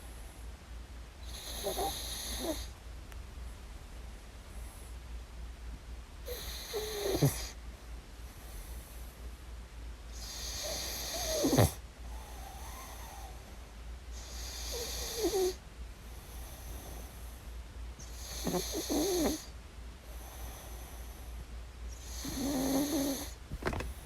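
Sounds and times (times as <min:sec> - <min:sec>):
puppy snoring: 0:01.2 - 0:02.7, 0:06.2 - 0:07.6, 0:10.1 - 0:13.4, 0:14.2 - 0:17.3, 0:18.0 - 0:21.3, 0:21.9 - 0:23.4.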